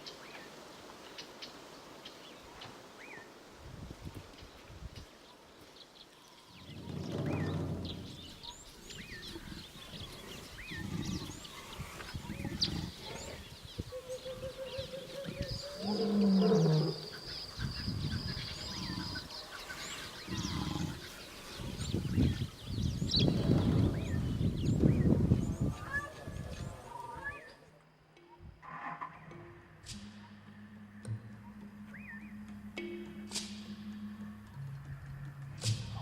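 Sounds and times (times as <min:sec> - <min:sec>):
small birds chirping: 0:04.2 - 0:28.5
elephants rumbling calls: 0:06.6 - 0:24.5.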